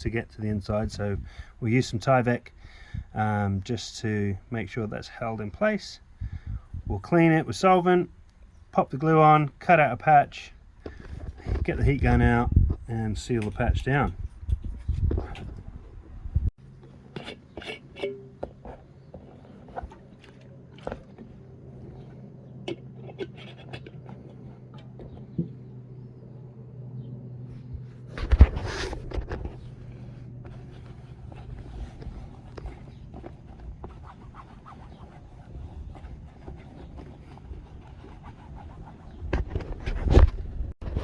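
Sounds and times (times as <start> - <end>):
steady low hum: 10.6 - 40.8
clicks and rustles of handled material: 16.6 - 25.7, 27.8 - 41.0
hands tapping and scraping fabric: 30.4 - 40.4.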